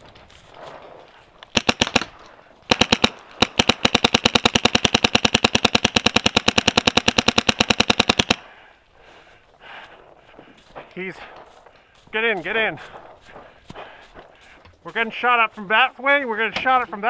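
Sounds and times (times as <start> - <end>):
paintball marker firing: 1.5 - 8.5.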